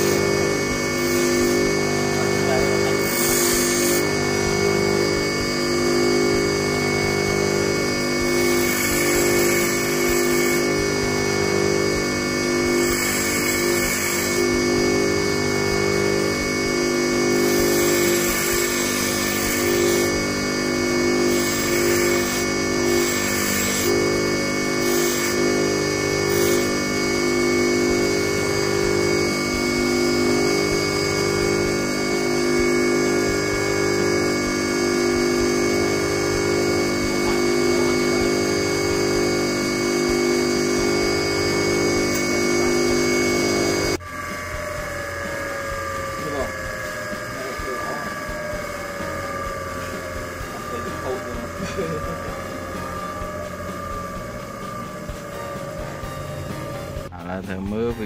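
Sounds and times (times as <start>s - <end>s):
bench grinder grinding metal wire: 0.0s - 57.2s.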